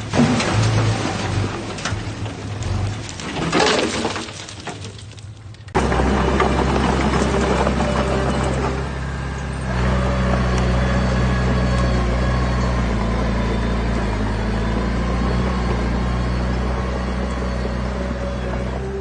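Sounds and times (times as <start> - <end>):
heavy diesel machine engine running: 5.7 - 19.0.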